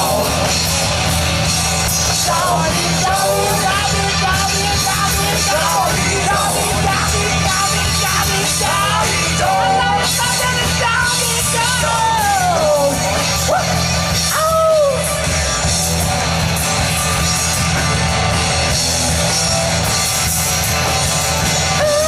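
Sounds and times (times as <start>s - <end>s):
person singing: 0.0s - 0.8s, 2.0s - 15.1s, 21.7s - 22.0s
rock band playing loudly: 0.0s - 22.0s.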